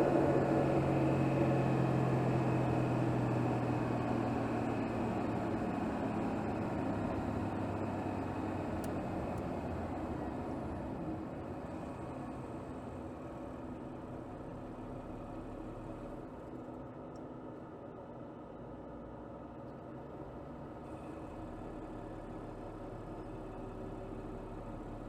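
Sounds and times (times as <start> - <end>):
car engine driving: 0.0 - 17.1.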